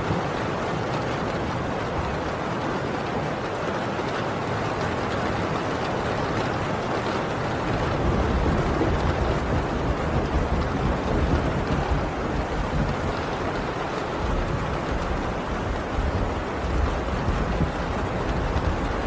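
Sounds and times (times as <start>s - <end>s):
heavy rain on a tin roof: 0.0s - 19.0s
distant thunder rumble: 7.6s - 19.0s.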